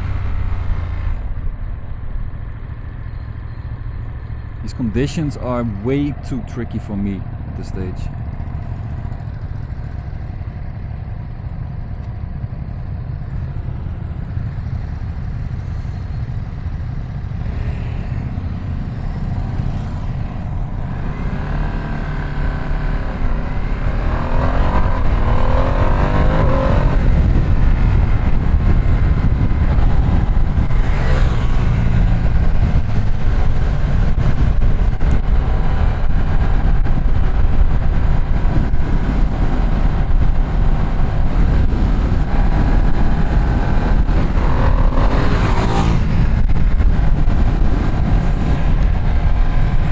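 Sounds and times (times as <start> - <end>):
motorcycle engine revving: 12.7 - 49.9
wind rushing noise: 17.4 - 49.9.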